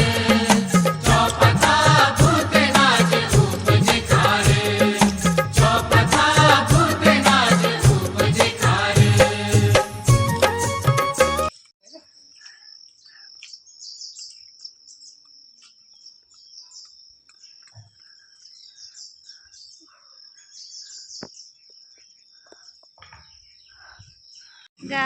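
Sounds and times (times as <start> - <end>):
birds calling: 10.2 - 24.8
insects chirring: 11.6 - 23.0.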